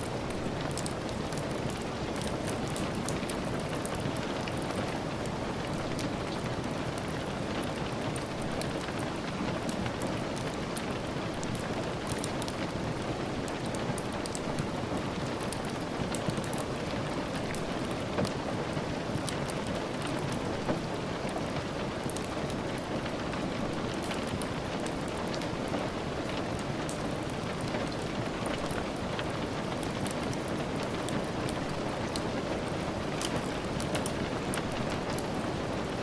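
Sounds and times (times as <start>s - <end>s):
steady rain: 0.0s - 36.0s
wood fire crackling: 0.0s - 36.0s.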